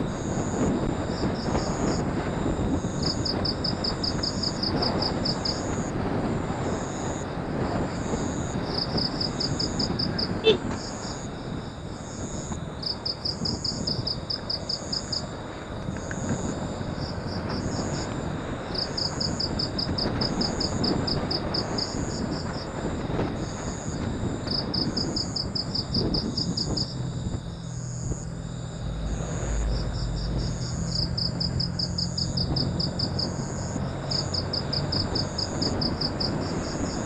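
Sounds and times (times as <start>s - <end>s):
insects chirping: 0.0s - 37.0s
wind rush on microphone: 0.0s - 37.0s
motorcycle engine: 26.8s - 35.9s.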